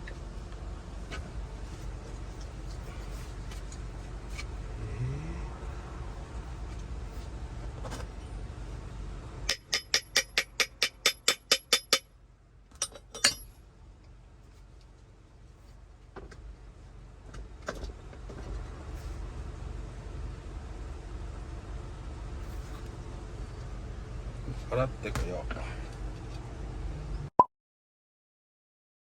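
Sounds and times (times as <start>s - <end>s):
low steady hum: 0.0s - 27.3s.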